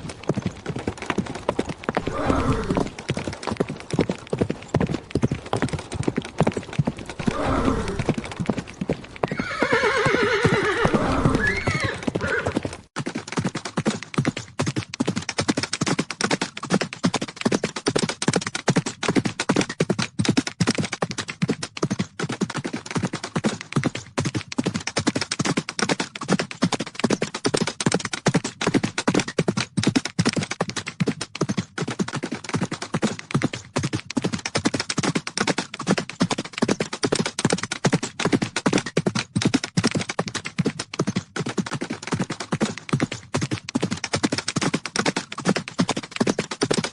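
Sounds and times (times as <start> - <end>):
horses galloping: 0.0 - 46.9
horse neighing: 2.0 - 2.9, 7.2 - 8.1, 9.2 - 12.6.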